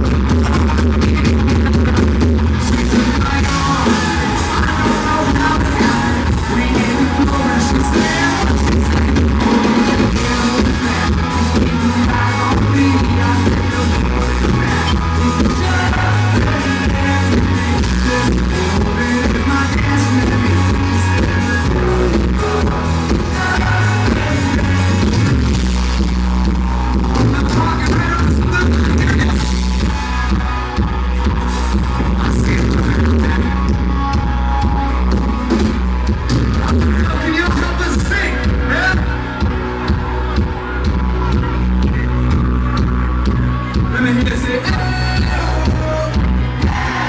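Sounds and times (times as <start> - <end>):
person singing: 0.0 - 26.0, 43.6 - 47.0
live country band playing: 0.0 - 47.0.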